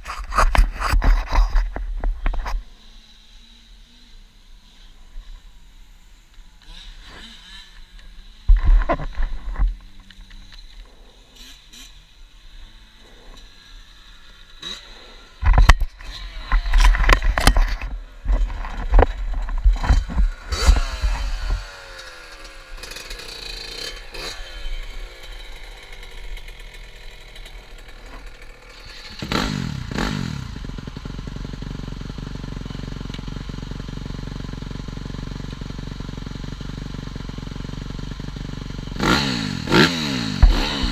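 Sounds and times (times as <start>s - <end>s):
motorcycle engine revving and idling: 0.0s - 40.9s.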